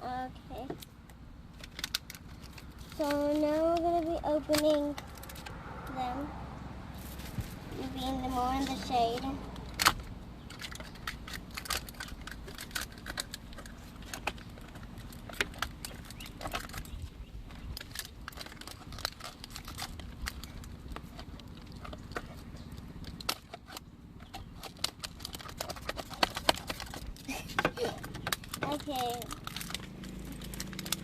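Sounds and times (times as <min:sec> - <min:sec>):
steady low hum: 0:00.0 - 0:31.0
plastic and paper wrapping crinkling: 0:01.5 - 0:05.5, 0:10.5 - 0:31.0.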